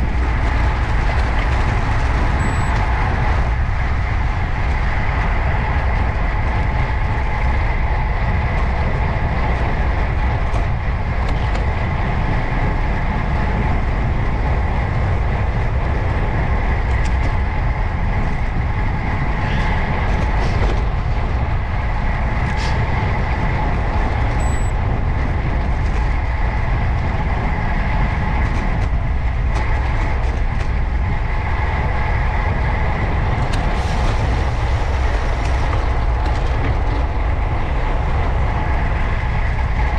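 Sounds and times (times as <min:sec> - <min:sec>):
wind and road noise rumble: 0:00.0 - 0:39.9.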